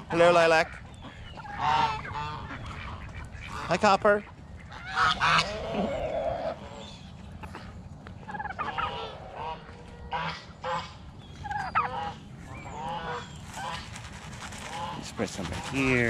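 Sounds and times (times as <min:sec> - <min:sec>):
geese honking: 0:00.0 - 0:07.1, 0:08.2 - 0:14.0, 0:14.6 - 0:16.0.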